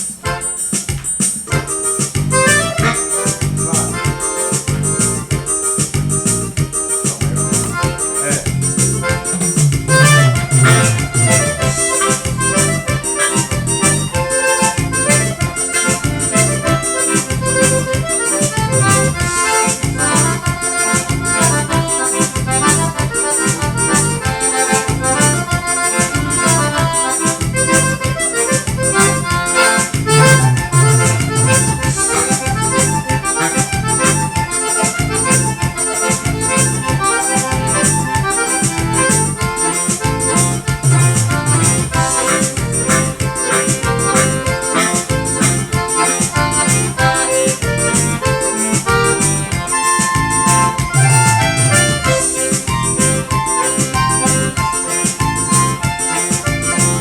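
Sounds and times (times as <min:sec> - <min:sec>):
accordion band music: 0:00.0 - 0:57.0.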